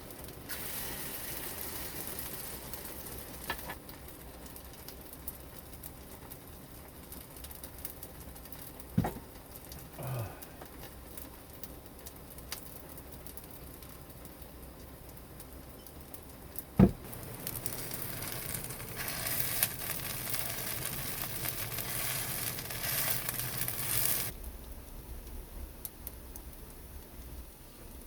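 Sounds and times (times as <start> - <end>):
light rain pattering: 0.0 - 28.0
knocks: 9.0 - 9.3, 16.8 - 17.0
loud thump: 9.0 - 9.3, 16.8 - 17.1.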